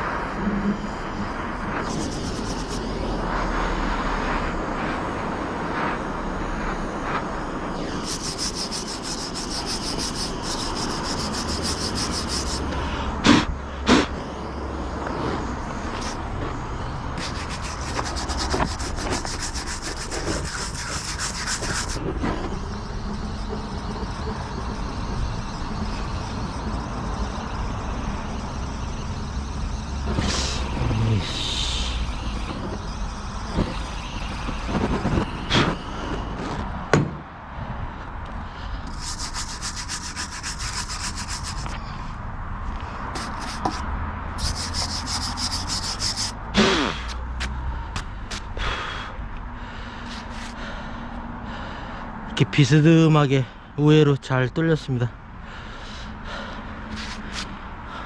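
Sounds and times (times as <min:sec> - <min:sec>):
rattling drill whine: 0:00.0 - 0:37.0, 0:38.8 - 0:43.8, 0:44.4 - 0:46.5
power drill boring into wood: 0:17.2 - 0:36.7
sharp knocks: 0:36.9 - 0:37.2.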